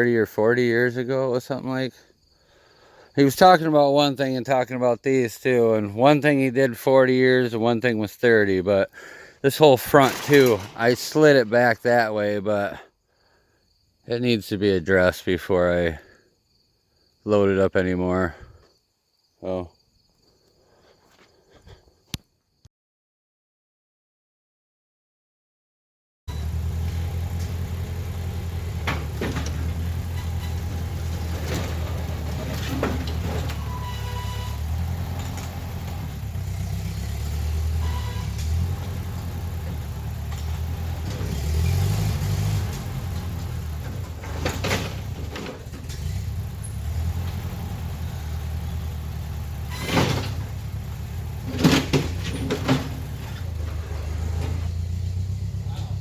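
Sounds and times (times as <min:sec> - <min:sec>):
sharp metal clanks: 0:09.8 - 0:11.3
vehicle engine idling: 0:26.3 - 0:56.0.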